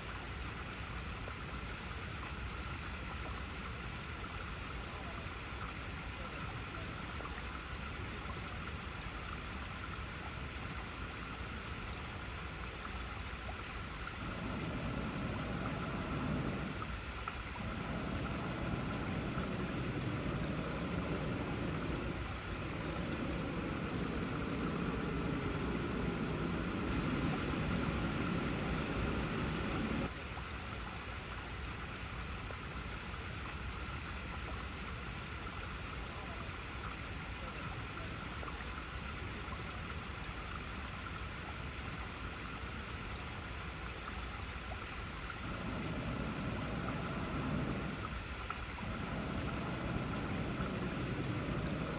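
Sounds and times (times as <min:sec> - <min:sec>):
water flowing over rocks: 0:00.0 - 0:51.9
deep rumbling: 0:14.1 - 0:30.1, 0:45.4 - 0:51.9.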